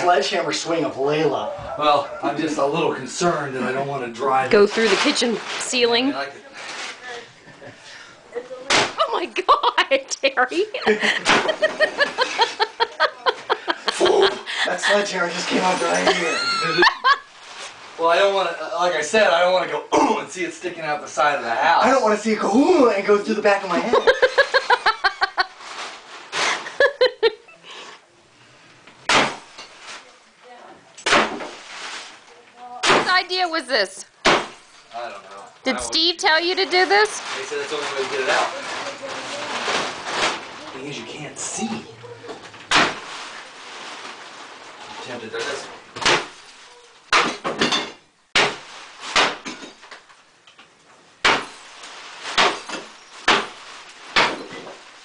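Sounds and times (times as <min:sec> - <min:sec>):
person laughing hard: 0:10.9 - 0:14.5, 0:16.1 - 0:17.2, 0:24.0 - 0:25.4, 0:26.6 - 0:27.5
sledgehammer smashing fixture: 0:31.0 - 0:31.7, 0:42.7 - 0:43.2, 0:47.1 - 0:49.8, 0:51.2 - 0:54.8
broken pieces clattering: 0:46.0 - 0:55.0.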